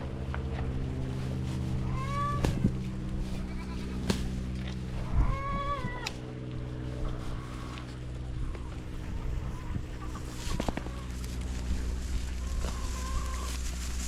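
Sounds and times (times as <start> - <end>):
steady low hum: 0.0 - 14.0
goat or sheep bleating: 3.2 - 4.2.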